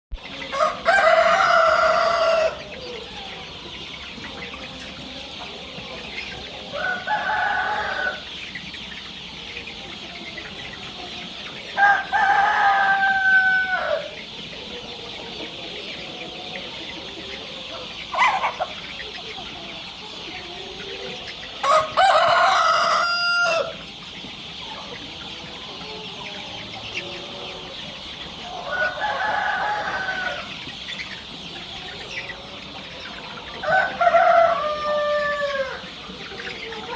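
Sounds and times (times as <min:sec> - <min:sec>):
roosters crowing: 0:00.2 - 0:03.3, 0:05.2 - 0:08.3, 0:11.6 - 0:14.3, 0:21.4 - 0:24.0, 0:25.4 - 0:30.7, 0:31.7 - 0:36.9.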